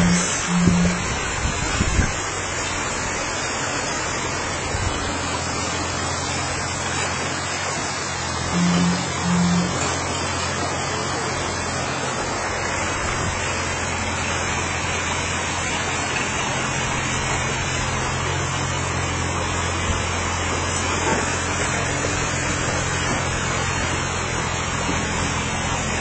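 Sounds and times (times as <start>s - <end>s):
steady rushing noise: 0.0s - 18.3s
construction machine engine: 0.0s - 26.0s.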